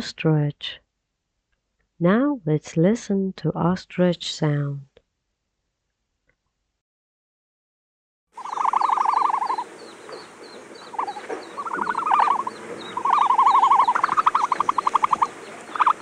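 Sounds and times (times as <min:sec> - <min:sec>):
faint high chirps: 0:08.4 - 0:16.0
fast pulsed animal trills: 0:08.4 - 0:16.0.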